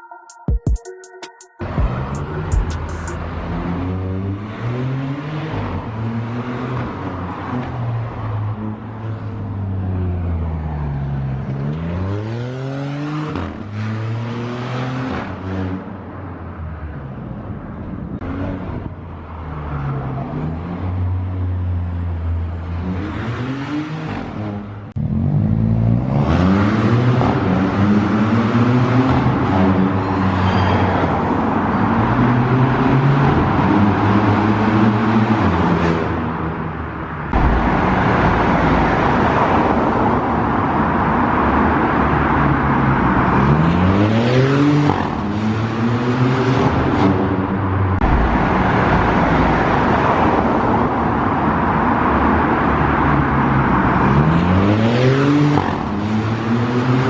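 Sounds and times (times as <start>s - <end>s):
car engine accelerating: 18.1s - 30.4s.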